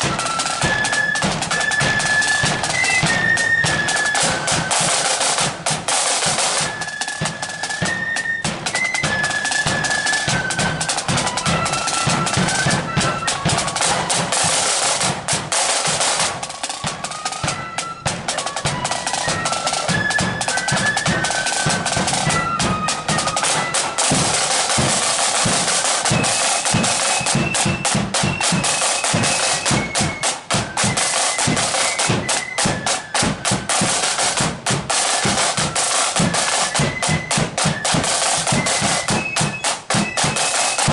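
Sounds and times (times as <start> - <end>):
flutes playing melody: 0.0 - 40.9
snare drum rolls: 0.0 - 40.9.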